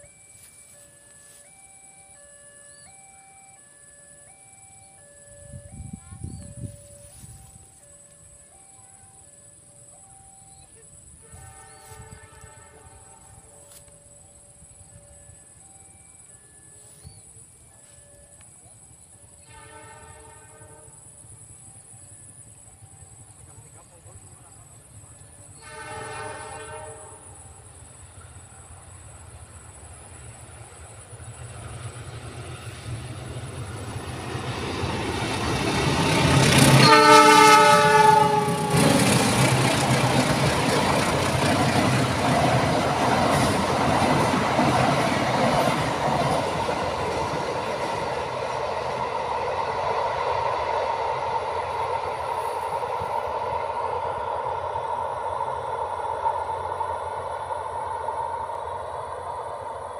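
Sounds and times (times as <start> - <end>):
train rolling on rails: 0.0 - 59.9
train horn: 10.6 - 13.9, 19.3 - 21.2, 25.4 - 27.6, 35.1 - 42.0.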